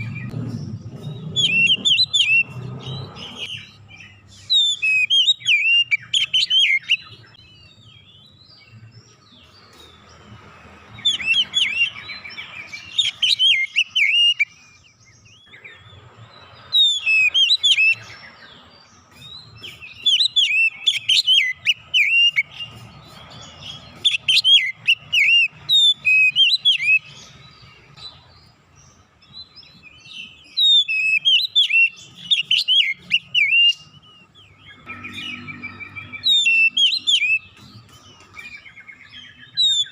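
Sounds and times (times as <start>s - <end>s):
bird singing whistled phrases: 1.0s - 8.3s, 11.0s - 15.8s, 16.7s - 18.5s, 19.2s - 22.8s, 23.6s - 27.2s, 29.4s - 39.9s.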